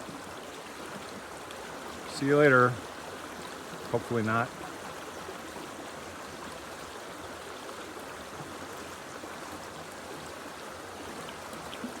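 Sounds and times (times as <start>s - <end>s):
creek flowing: 0.0s - 12.0s.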